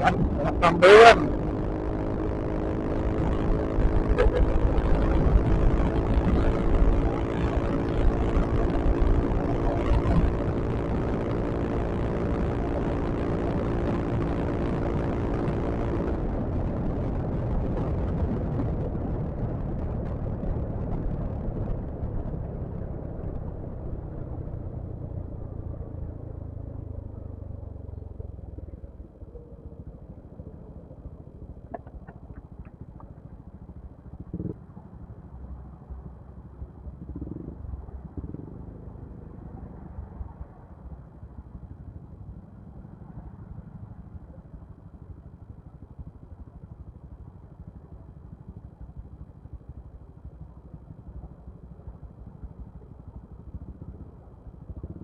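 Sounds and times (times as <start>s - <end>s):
scooter engine running: 0.0s - 40.0s
wind and road noise: 0.0s - 55.0s.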